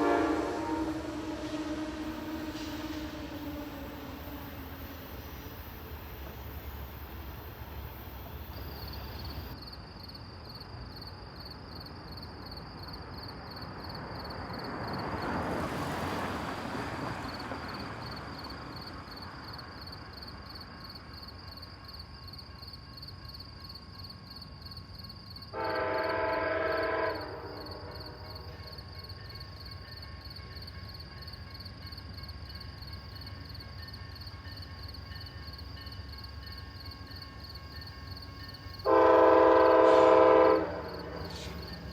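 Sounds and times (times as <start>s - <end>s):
locomotive air horn blast: 0.0s - 5.8s, 25.6s - 28.7s, 38.8s - 41.9s
steady background hiss: 0.0s - 12.8s.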